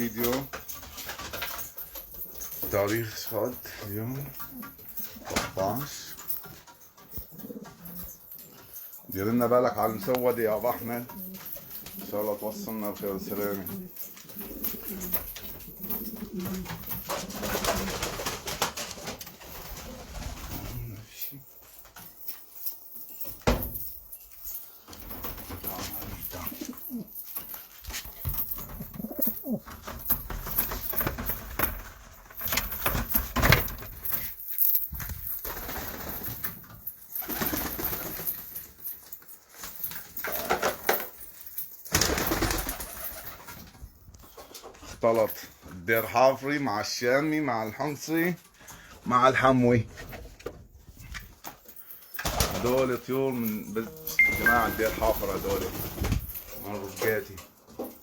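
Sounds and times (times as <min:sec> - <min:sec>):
rustling: 0:00.0 - 0:46.3
pigeons cooing: 0:07.2 - 0:08.4, 0:11.0 - 0:18.2.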